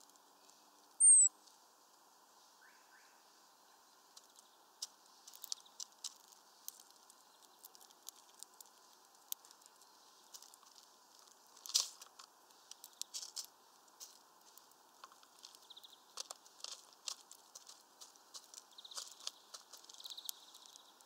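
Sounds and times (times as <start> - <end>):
high thin bird call: 1.0 - 1.3
faint clicks and taps: 4.1 - 21.0.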